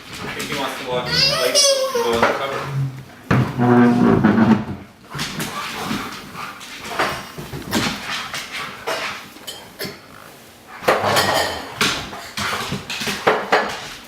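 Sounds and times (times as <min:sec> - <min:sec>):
cutlery and dishes clinking: 0:10.9 - 0:13.9.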